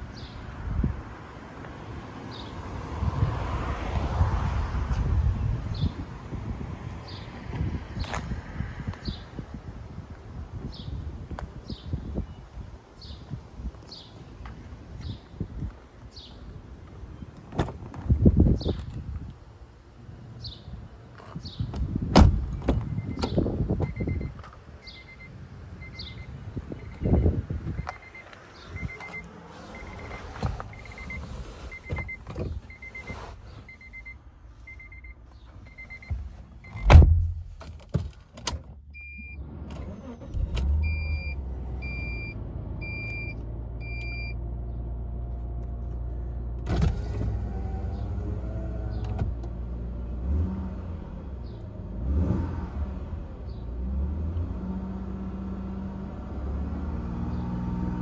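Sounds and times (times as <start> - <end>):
car engine starting and idling: 21.9 - 58.0
warning chime beeping: 24.9 - 36.1
heavy thump: 36.1 - 38.1
engine revving: 51.8 - 58.0.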